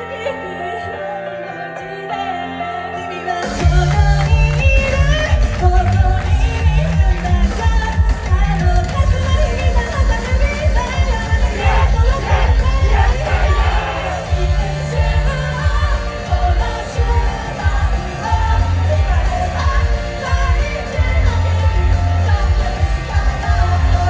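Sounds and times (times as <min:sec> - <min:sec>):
live band playing: 0:03.3 - 0:24.0
drums: 0:03.4 - 0:24.0
heavy bass line: 0:11.2 - 0:15.0
person singing: 0:11.4 - 0:24.0.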